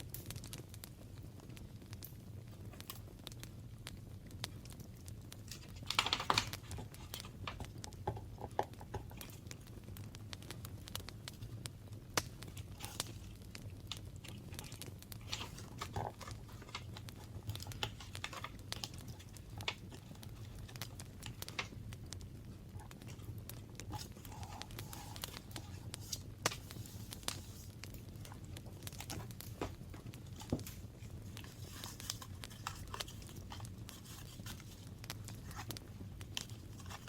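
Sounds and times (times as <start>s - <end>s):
paper rustling: 5.5s - 7.6s, 14.2s - 21.7s, 23.8s - 37.0s.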